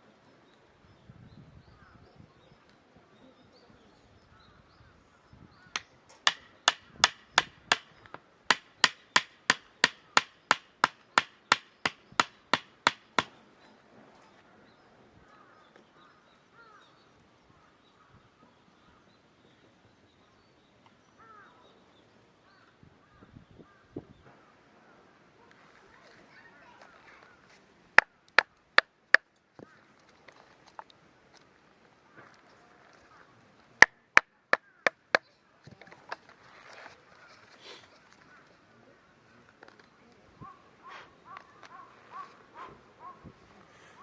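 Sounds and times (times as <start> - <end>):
wood being chopped: 5.8 - 13.4.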